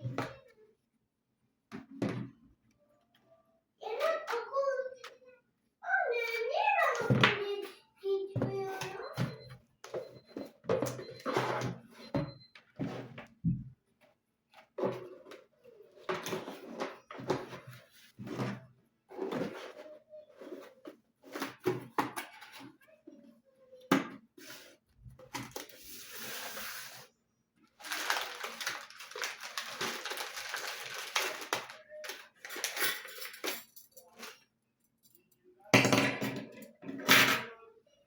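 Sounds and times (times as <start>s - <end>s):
dishes and utensils clinking: 31.6s - 34.5s, 35.1s - 37.6s.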